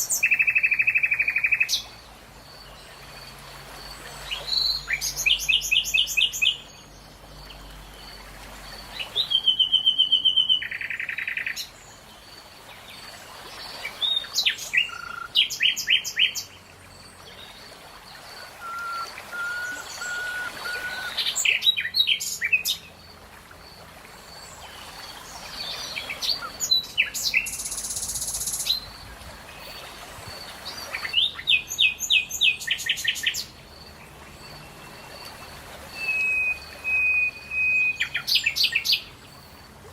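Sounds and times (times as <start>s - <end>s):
faint outdoor background: 0.0s - 39.9s
songbirds chirping: 0.0s - 39.9s
whistled bird notes: 18.6s - 22.6s, 35.9s - 39.1s.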